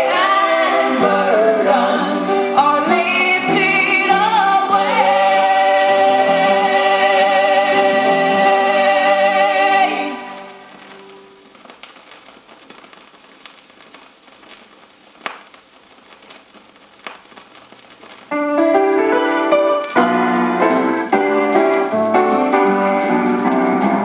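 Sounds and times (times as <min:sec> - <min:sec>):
gospel piano chords and melody: 0:00.0 - 0:12.1, 0:18.2 - 0:24.0
faint hiss: 0:00.0 - 0:24.0.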